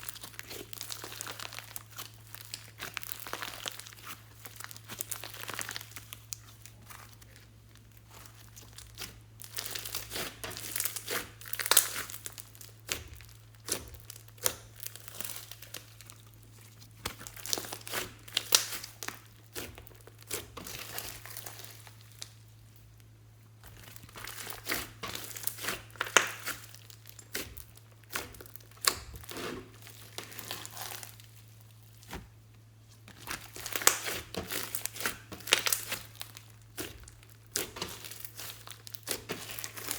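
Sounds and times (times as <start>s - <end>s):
slime crackling and popping: 0.0s - 39.9s.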